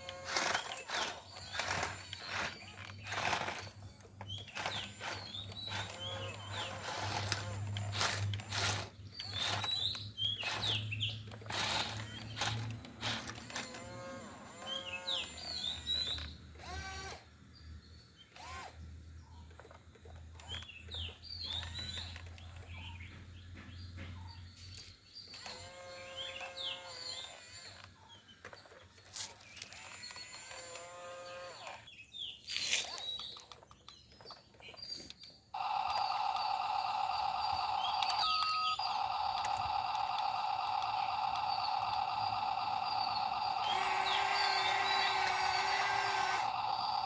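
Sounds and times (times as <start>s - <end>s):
birds chirping: 0.0s - 47.0s
drawn-out animal calls: 35.6s - 47.0s.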